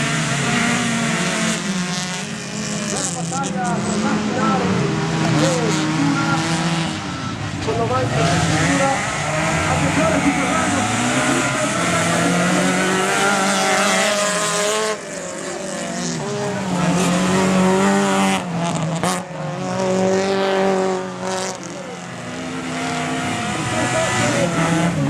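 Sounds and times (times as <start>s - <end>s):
race car engines revving: 0.0s - 25.0s.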